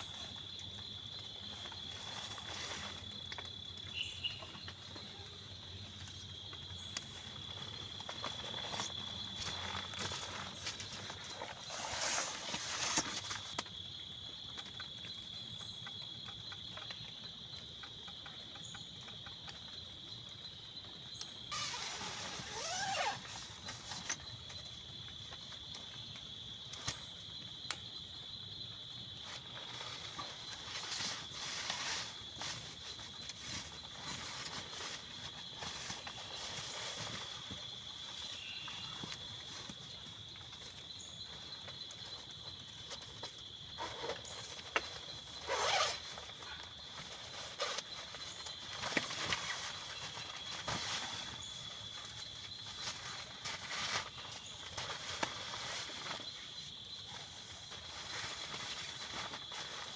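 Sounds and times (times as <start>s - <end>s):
rustling: 0.0s - 13.8s, 21.5s - 24.7s, 29.1s - 59.9s.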